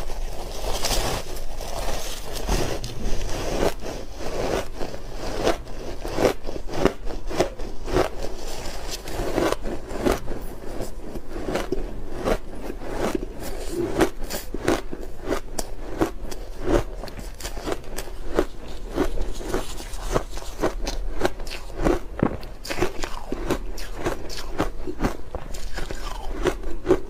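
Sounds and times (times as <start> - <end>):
ice crunching being chewed: 0.0 - 27.0.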